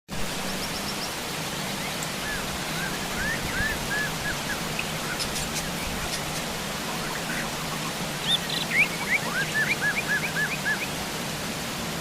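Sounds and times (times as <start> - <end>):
heavy rain hissing: 0.1 - 12.0
bird whistling notes: 2.2 - 10.9.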